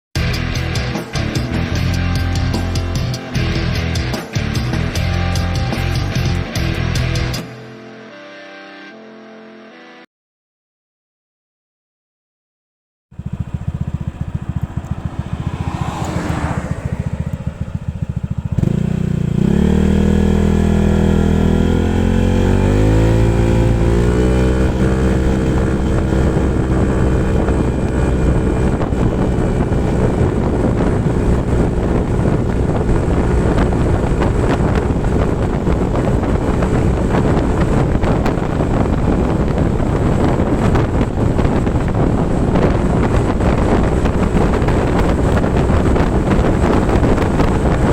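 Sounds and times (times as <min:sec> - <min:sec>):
scooter engine accelerating: 0:00.2 - 0:07.4, 0:13.2 - 0:47.9
wind rumble on microphone: 0:13.2 - 0:47.9.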